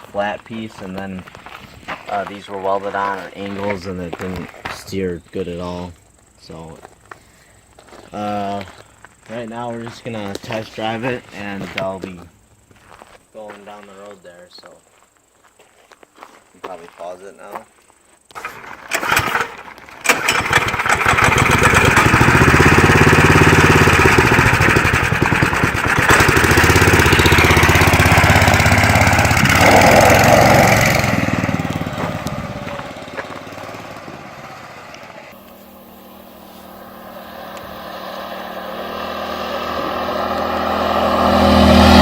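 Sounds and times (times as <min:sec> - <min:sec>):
dirt bike engine running hard: 0:20.3 - 0:42.0.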